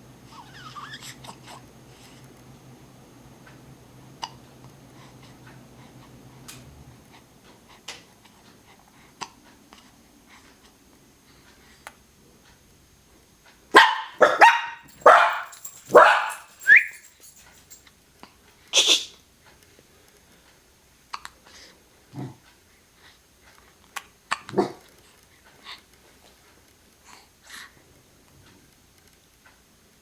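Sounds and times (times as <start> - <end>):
dog barking: 13.7 - 16.9, 24.5 - 24.8
dog yelp: 13.8 - 17.0.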